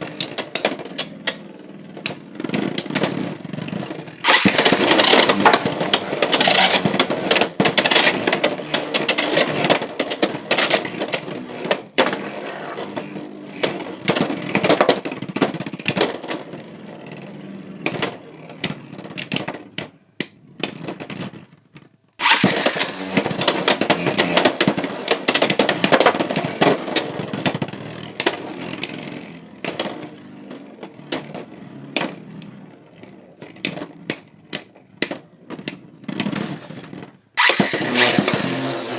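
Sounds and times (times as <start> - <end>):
spinning top launch: 4.2 - 7.2, 22.2 - 23.7, 37.4 - 38.9.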